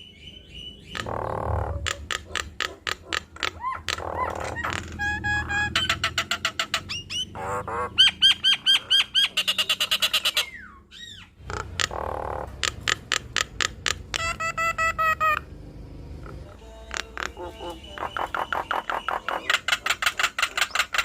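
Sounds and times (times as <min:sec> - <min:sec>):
starling singing: 0:00.0 - 0:21.0.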